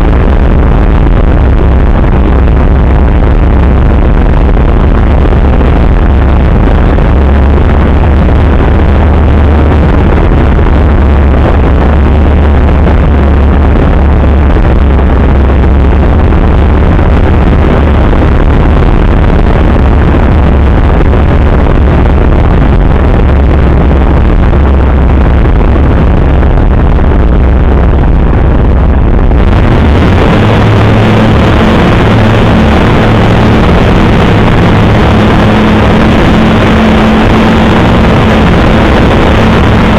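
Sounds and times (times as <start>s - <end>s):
aircraft engine hum: 0.0s - 39.9s
wind rushing on microphone: 0.0s - 39.9s.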